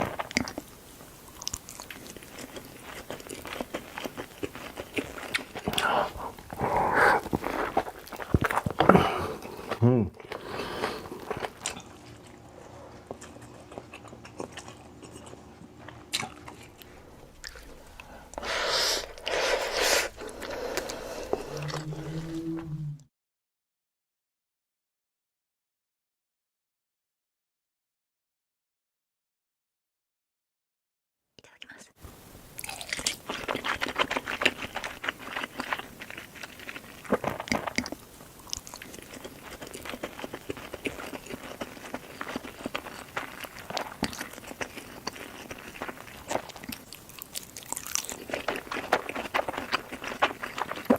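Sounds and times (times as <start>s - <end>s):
person chewing food: 0.0s - 22.7s, 32.6s - 50.9s
mouth clicks and crunches: 1.3s - 12.4s, 13.0s - 22.4s, 32.6s - 50.9s.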